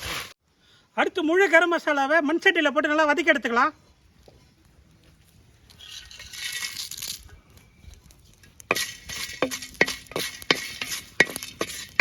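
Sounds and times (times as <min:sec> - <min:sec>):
spices rustling hiss: 0:03.8 - 0:12.0
ladle clinking against clay pot: 0:08.7 - 0:12.0.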